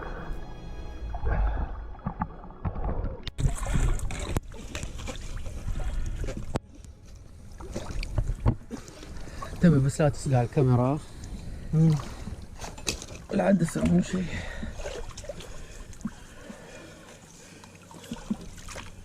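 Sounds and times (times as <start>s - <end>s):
background music: 0.0s - 4.0s
water splashing and sloshing: 0.0s - 19.0s.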